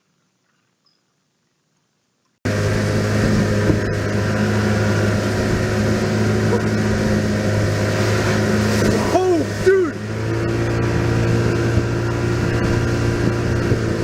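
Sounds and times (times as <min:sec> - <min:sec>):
engine running: 0:02.4 - 0:14.0.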